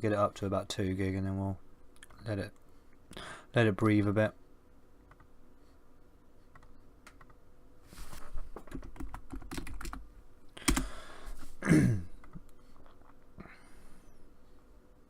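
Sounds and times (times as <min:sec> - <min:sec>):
keyboard typing: 0:08.6 - 0:10.0, 0:10.6 - 0:10.9.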